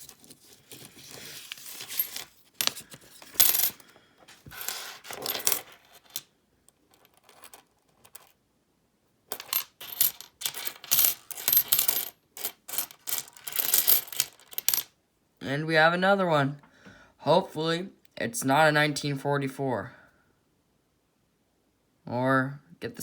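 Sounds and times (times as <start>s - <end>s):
coins clinking and jingling: 1.4s - 3.8s, 4.5s - 6.3s, 6.9s - 8.3s, 9.3s - 14.9s.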